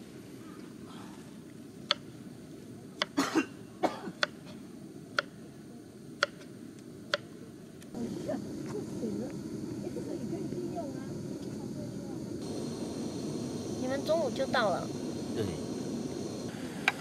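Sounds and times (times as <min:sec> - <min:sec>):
person coughing: 0:03.2 - 0:04.2
low background rumble: 0:04.7 - 0:16.6.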